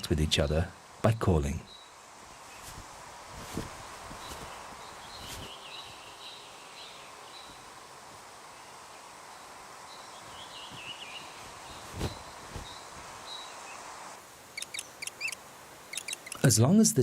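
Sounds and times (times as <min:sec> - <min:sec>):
faint wavering bird calls: 0:04.1 - 0:07.8, 0:08.4 - 0:16.5.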